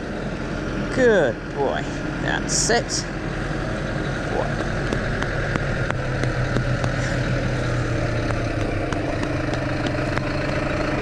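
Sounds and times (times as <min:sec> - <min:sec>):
tractor engine running: 0:00.0 - 0:11.0
sharp clicks and rattles: 0:04.5 - 0:11.0.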